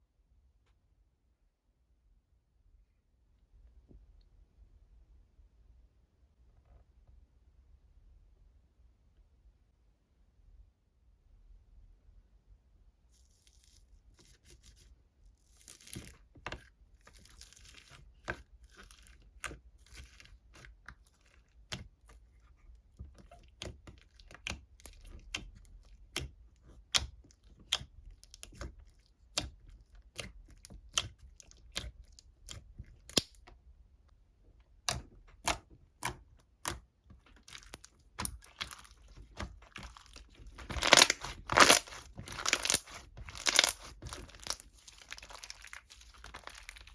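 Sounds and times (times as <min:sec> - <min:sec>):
sharp crackles and crinkling: 0:37.2 - 0:46.9.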